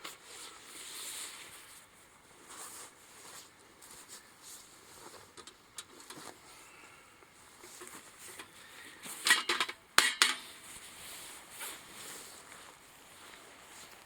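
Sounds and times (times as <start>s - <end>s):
faint rustling: 0.0s - 9.7s, 10.4s - 14.0s.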